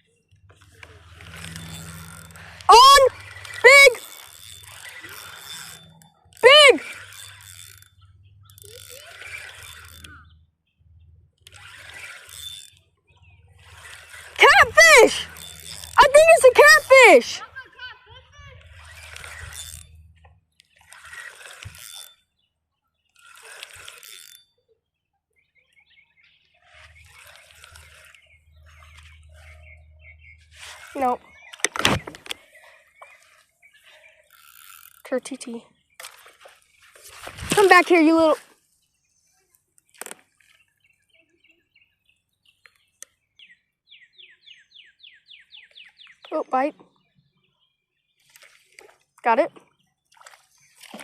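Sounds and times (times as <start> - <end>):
soft bird chirps: 24.4 - 37.0, 38.1 - 51.0
fish splashing in water: 36.0 - 37.8, 50.0 - 51.0.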